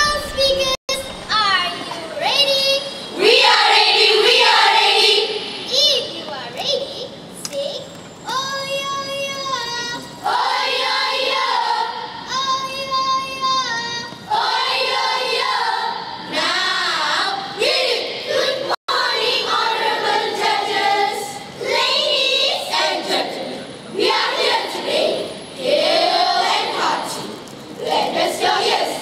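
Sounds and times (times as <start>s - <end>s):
children chanting in unison: 9.9s - 29.0s.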